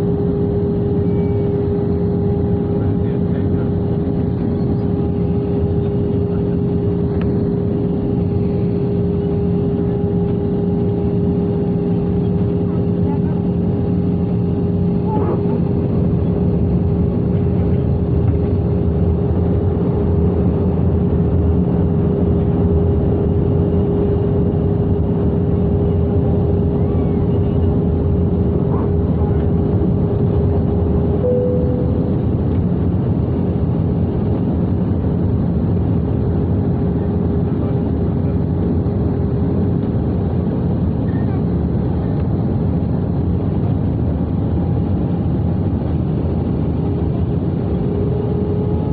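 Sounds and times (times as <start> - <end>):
airplane cabin drone: 0.0 - 48.9
brief higher tone: 31.2 - 32.3.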